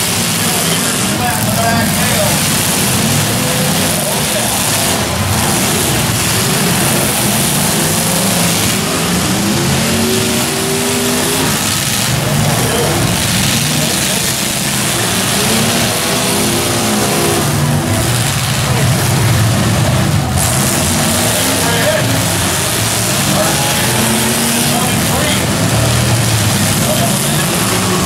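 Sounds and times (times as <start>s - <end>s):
car engines revving: 0.0s - 28.0s
crowd voices: 0.0s - 28.0s.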